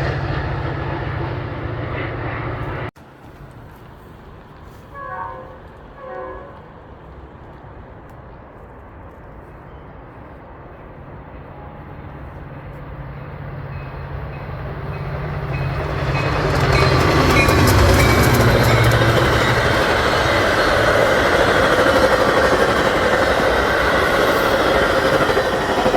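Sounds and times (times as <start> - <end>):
train engine drone and wheels: 0.0 - 25.9
train horn blast: 4.7 - 6.8.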